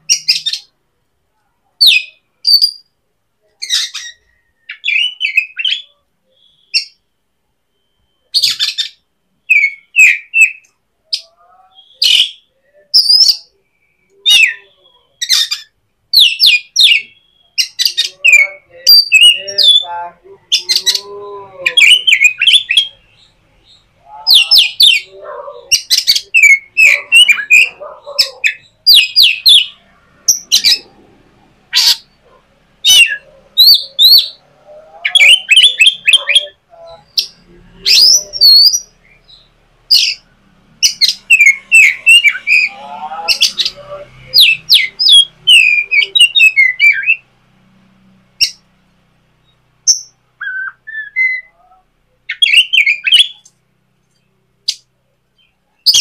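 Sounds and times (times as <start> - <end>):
bird chirping and squawking: 0.0 - 0.8, 1.8 - 2.9, 3.6 - 7.0, 7.7 - 47.4, 48.3 - 48.8, 49.4 - 53.6, 54.6 - 56.0.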